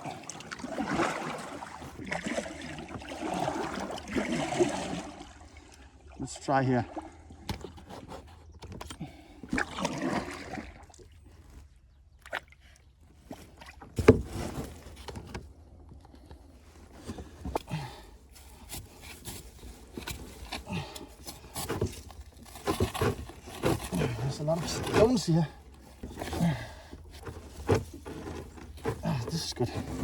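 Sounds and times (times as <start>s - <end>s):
paddle strokes splashing: 0.0s - 5.6s.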